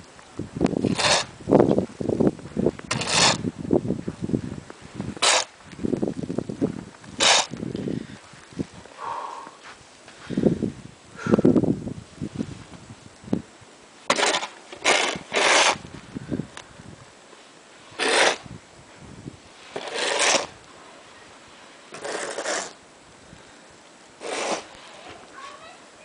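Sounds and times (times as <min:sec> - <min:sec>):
snow shovel scraping snow: 0:00.8 - 0:01.3, 0:02.9 - 0:03.4, 0:05.2 - 0:05.5, 0:07.2 - 0:07.6, 0:14.1 - 0:15.9, 0:17.8 - 0:18.5, 0:19.5 - 0:22.8, 0:24.2 - 0:25.7.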